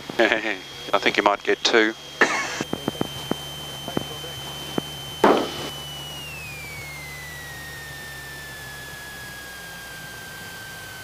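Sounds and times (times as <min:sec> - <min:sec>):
low engine idle hum: 0:00.0 - 0:11.0.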